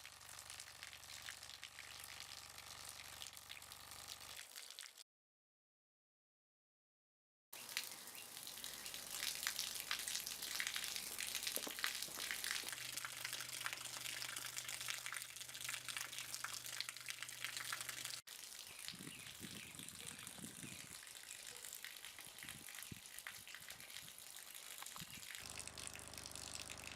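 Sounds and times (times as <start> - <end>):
running water splashing: 7.6 - 26.9
low steady hum: 25.4 - 26.9.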